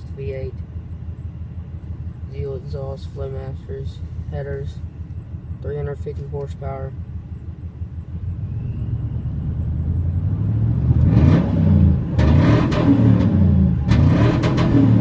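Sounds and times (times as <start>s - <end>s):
truck engine idling: 0.0s - 10.9s
engine throttle blips: 0.0s - 15.0s.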